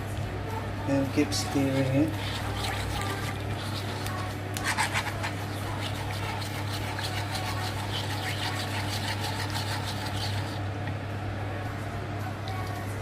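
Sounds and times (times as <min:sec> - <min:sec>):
utensil scraping pan: 0:01.6 - 0:10.6.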